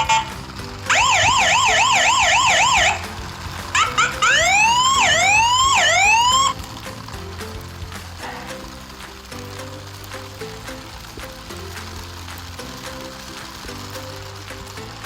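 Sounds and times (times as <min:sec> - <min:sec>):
background music: 0:00.0 - 0:15.0
electronic siren wailing: 0:00.9 - 0:03.0, 0:03.8 - 0:06.5.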